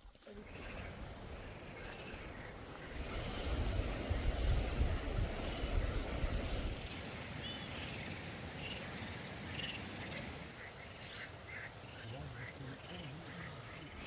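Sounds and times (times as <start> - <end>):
wind buffeting microphone: 0.5 - 10.8.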